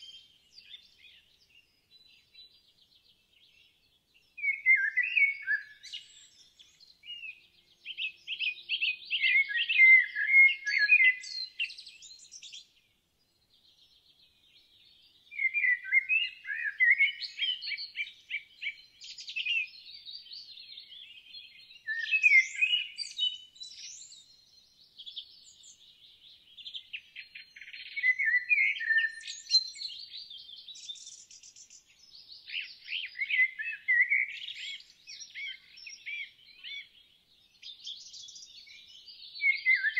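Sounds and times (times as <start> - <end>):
songbirds warbling and chirping: 0.0 - 39.9.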